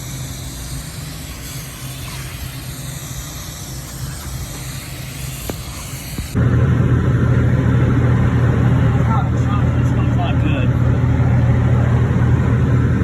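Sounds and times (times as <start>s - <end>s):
air hissing: 0.0s - 6.4s
air conditioning unit humming: 0.0s - 13.0s.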